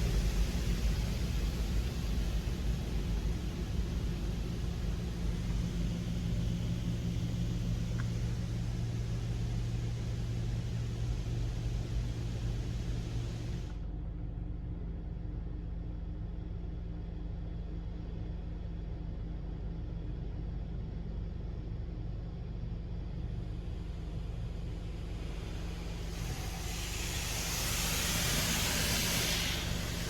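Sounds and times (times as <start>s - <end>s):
loud hiss of spray: 0.0s - 13.8s, 23.6s - 30.0s
car wash machine low hum: 0.0s - 30.0s.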